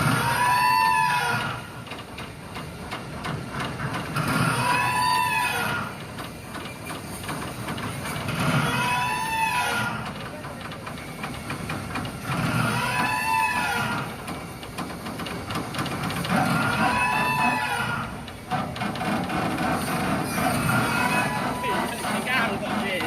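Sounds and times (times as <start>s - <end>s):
haul-out machinery rumbling: 0.0s - 23.0s
metallic squeal: 16.4s - 18.1s, 19.8s - 23.0s.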